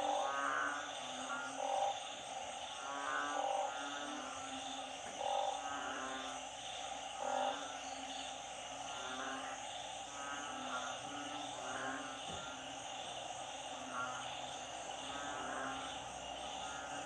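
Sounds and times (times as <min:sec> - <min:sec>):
frogs croaking: 0:00.0 - 0:17.0
high-pitched frog chorus: 0:00.0 - 0:17.0.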